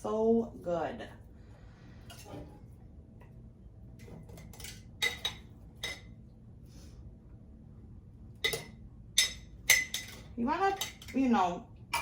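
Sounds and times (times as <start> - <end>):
clinks against glass jars: 8.4 - 11.3.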